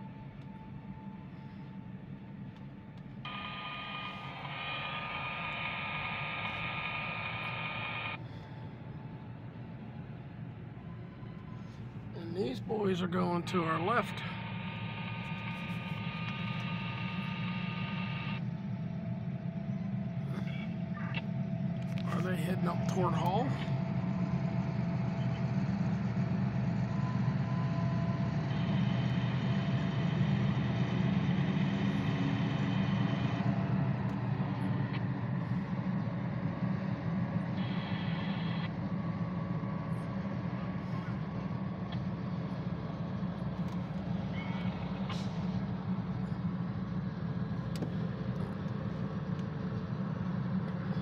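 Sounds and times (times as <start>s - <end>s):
freight train rumble: 8.2s - 17.6s, 38.8s - 51.0s.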